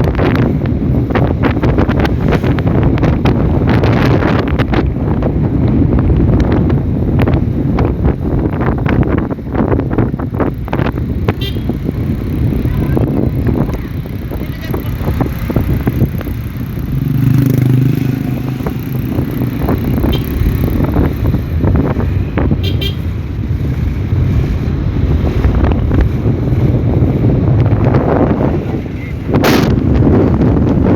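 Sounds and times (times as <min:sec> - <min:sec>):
wind buffeting microphone: 0:00.0 - 0:30.9
vehicle engine running: 0:06.6 - 0:30.9.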